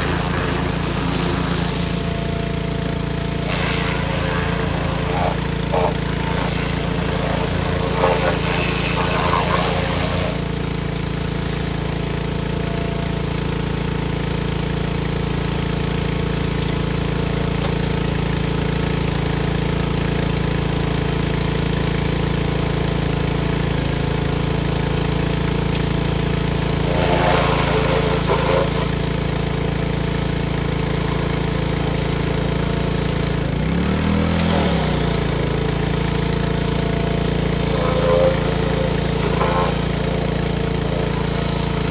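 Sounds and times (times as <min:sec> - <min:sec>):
short noisy burst: 0:00.0 - 0:12.7, 0:26.8 - 0:30.6, 0:37.1 - 0:41.9
machine motor pulsing hum: 0:00.0 - 0:41.9.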